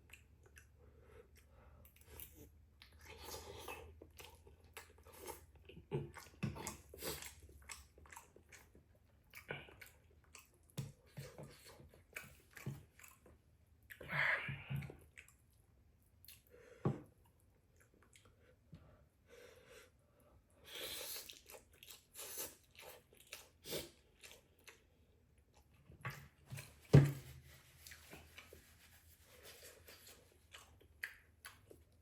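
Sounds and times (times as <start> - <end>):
person chewing noodles: 0.0 - 14.1, 14.8 - 15.6, 16.2 - 16.6, 17.3 - 18.6, 20.6 - 26.7, 29.4 - 32.0.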